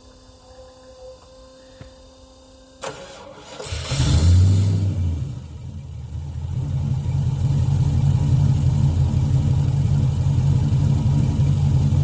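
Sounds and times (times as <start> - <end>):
truck engine running: 3.6 - 12.0.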